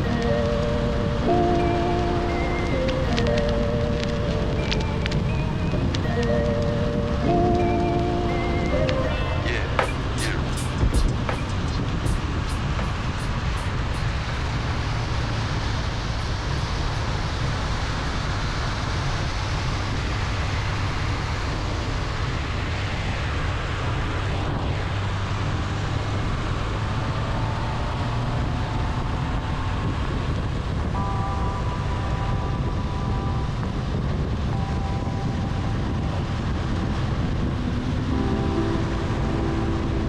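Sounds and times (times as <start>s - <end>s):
steady higher tones: 0.0s - 17.1s, 31.0s - 40.0s
motorcycle engine drone: 0.0s - 40.0s
wind and road noise: 0.0s - 40.0s.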